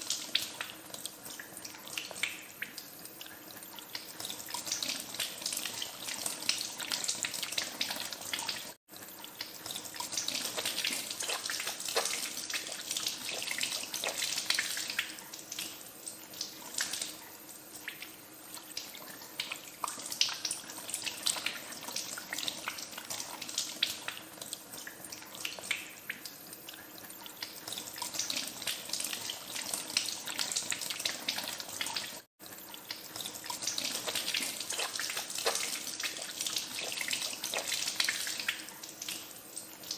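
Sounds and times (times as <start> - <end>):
splashing of hands washing: 9.6 - 15.8, 32.9 - 39.3.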